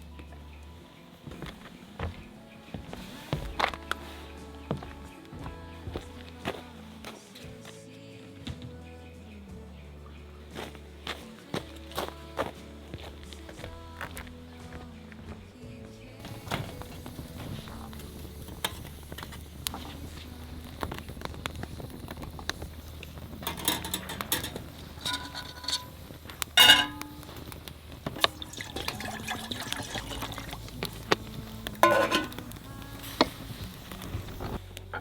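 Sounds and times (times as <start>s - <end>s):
liquid being poured: 22.8s - 32.7s
cookware clicks and knocks: 23.4s - 26.0s, 26.6s - 27.4s, 31.8s - 32.5s.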